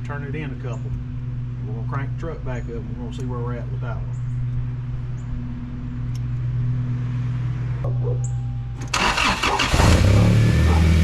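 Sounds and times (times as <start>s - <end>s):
steady low hum: 0.0s - 8.9s
engine cranking and starting: 8.8s - 11.0s.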